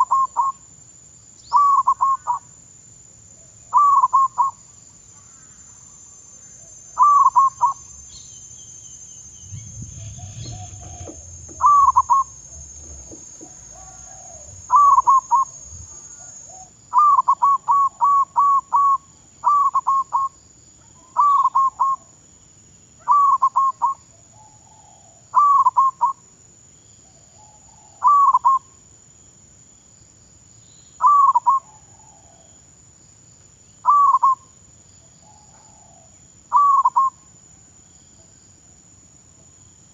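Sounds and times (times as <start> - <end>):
dove cooing: 9.4 - 16.7.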